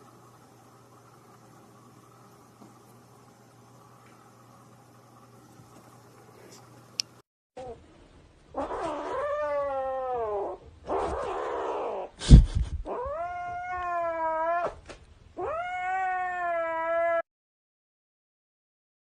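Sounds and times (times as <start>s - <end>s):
cat yowling: 8.6s - 12.2s, 12.9s - 14.8s, 15.4s - 17.3s.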